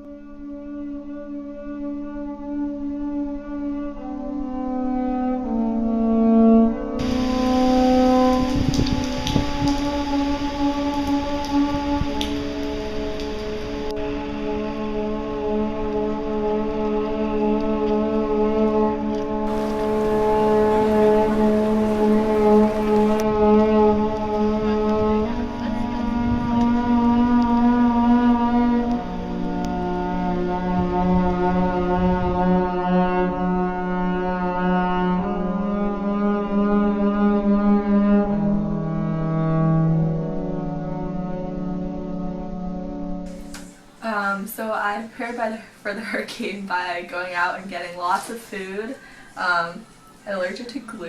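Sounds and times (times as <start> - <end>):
long held brass-like notes: 0.0 - 43.6
steady hiss: 7.0 - 14.4, 19.5 - 23.3, 43.3 - 51.0
wind instruments holding chords: 13.6 - 31.2
low thumps: 19.5 - 24.2.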